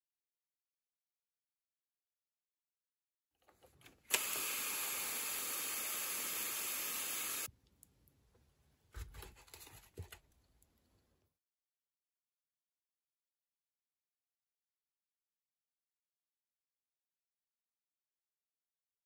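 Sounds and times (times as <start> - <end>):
pressure sprayer hissing: 4.1 - 7.5
sprayer click: 4.1 - 7.5.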